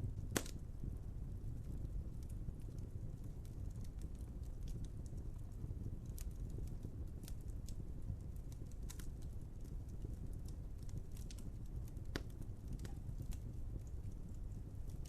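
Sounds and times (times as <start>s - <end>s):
fire crackles and pops: 0.0s - 15.0s
wood fire rumbling: 0.0s - 15.0s.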